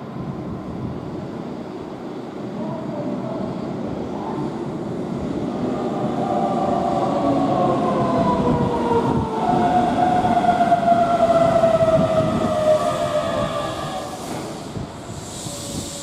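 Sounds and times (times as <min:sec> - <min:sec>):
train wheels rumbling: 0:04.0 - 0:16.0.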